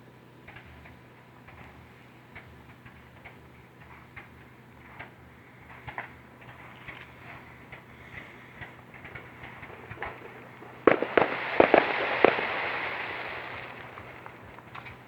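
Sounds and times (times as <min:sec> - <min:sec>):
fireworks pops and bangs: 0:04.9 - 0:15.0
fireworks crackling: 0:06.3 - 0:15.0.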